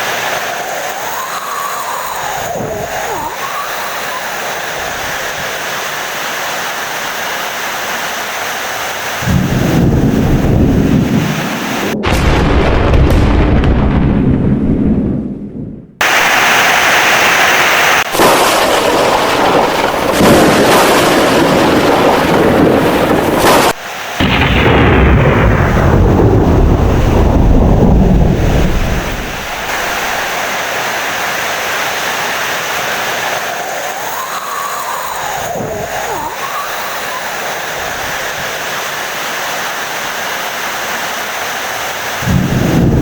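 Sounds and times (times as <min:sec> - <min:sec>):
heavy rain: 0:00.0 - 0:13.9, 0:16.0 - 0:43.0
deep rumbling thunder: 0:09.2 - 0:16.0, 0:18.2 - 0:30.4, 0:42.2 - 0:43.0.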